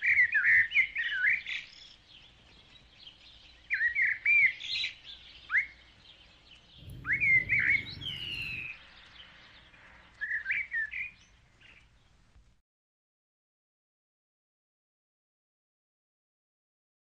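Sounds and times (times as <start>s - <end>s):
birds chirping: 6.2s - 9.4s
falling bird whistle: 6.8s - 8.8s
low rumble: 6.8s - 9.0s.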